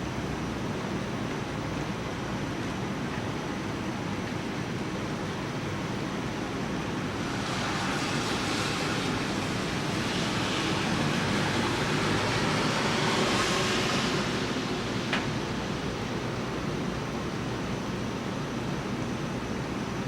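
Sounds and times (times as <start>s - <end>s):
steady rain hiss: 5.0s - 19.7s.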